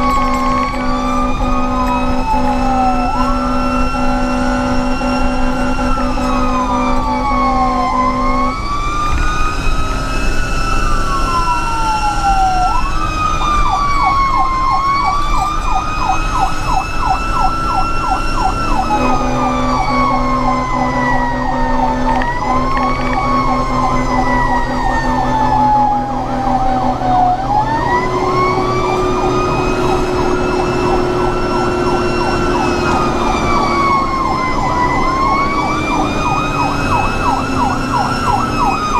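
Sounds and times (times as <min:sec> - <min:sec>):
siren wailing: 0:00.0 - 0:38.9
siren yelp: 0:00.0 - 0:38.9.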